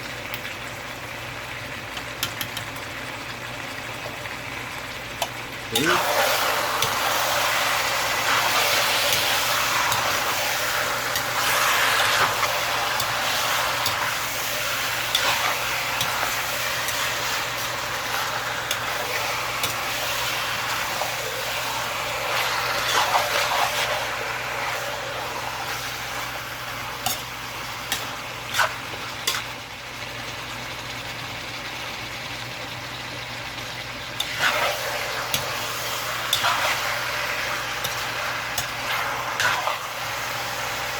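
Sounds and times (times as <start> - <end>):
chicken sizzling in a pan: 0.0 - 40.9
spatula clicking against pan: 2.2 - 2.7, 35.3 - 35.6.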